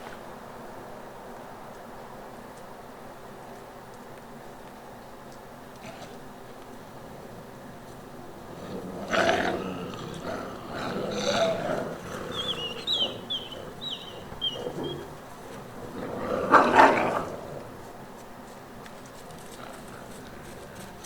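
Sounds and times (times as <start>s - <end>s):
wolves growling and snarling: 5.8s - 18.2s, 18.8s - 21.0s.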